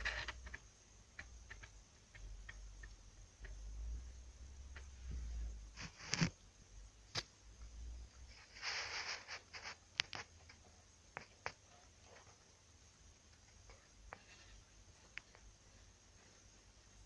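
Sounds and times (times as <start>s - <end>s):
rustling and scraping: 4.9s - 6.4s, 8.2s - 12.5s, 13.3s - 16.7s.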